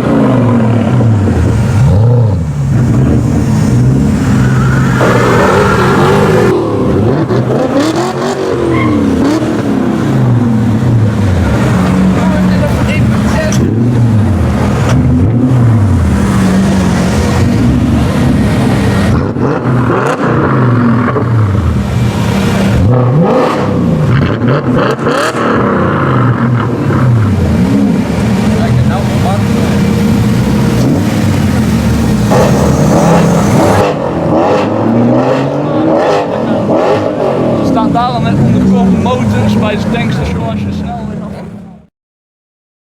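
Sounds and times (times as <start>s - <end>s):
sports car engine revving: 0.0s - 41.8s.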